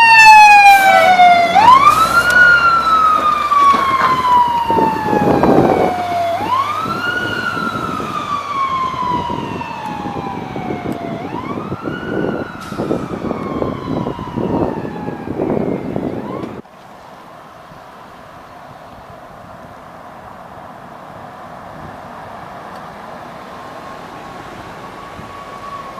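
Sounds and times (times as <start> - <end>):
fire engine siren wailing: 0.0 - 16.6, 21.8 - 25.9
truck rumble: 0.0 - 25.9.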